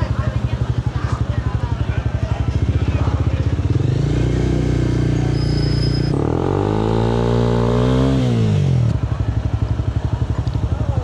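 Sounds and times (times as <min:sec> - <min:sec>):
motorcycle engine pulling away: 0:02.4 - 0:11.0.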